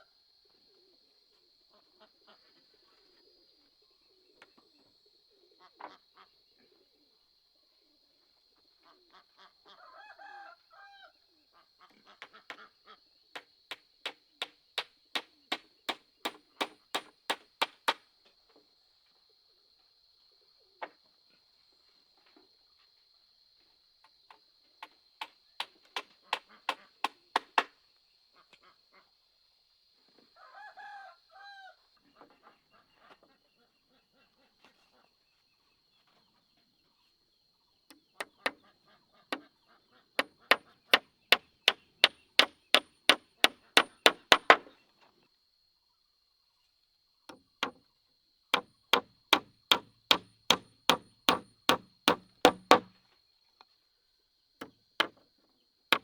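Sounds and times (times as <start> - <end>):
hand tool striking wood: 15.2 - 18.0, 40.2 - 44.7, 47.3 - 47.8, 48.6 - 53.0, 54.6 - 55.2
bird calls: 37.9 - 44.8.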